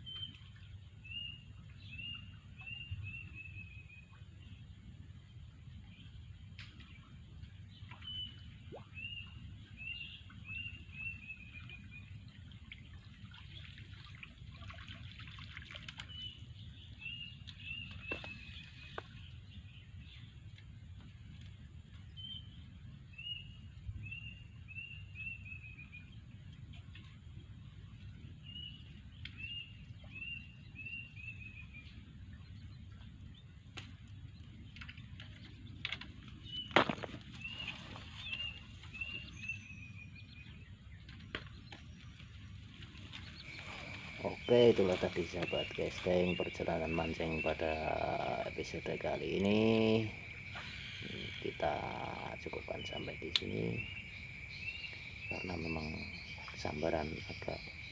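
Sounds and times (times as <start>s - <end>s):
songbird whistled song: 0.0s - 4.3s, 7.9s - 12.3s, 16.0s - 20.3s, 22.1s - 26.2s, 28.4s - 32.7s, 36.4s - 57.9s
steady low rumble: 31.6s - 57.9s.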